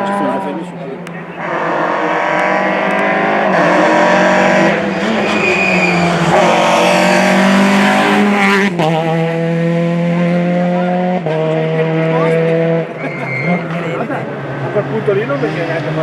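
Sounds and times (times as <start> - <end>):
rally car engine at high revs: 0.0 - 16.0.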